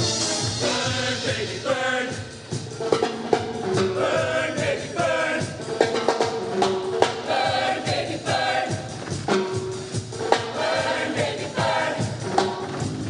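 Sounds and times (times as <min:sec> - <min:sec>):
choir singing: 0:00.0 - 0:02.4, 0:03.7 - 0:06.0, 0:07.0 - 0:09.0, 0:10.2 - 0:12.7
accompaniment with percussive beat: 0:00.0 - 0:13.0.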